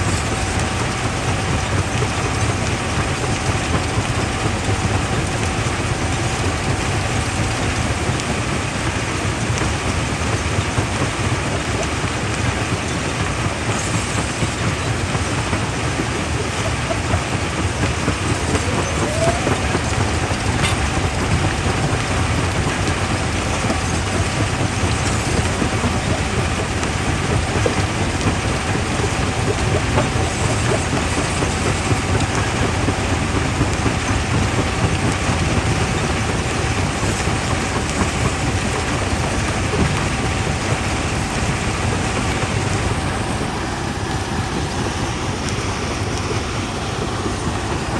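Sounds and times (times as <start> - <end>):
rock crusher rumbling: 0.0 - 47.9.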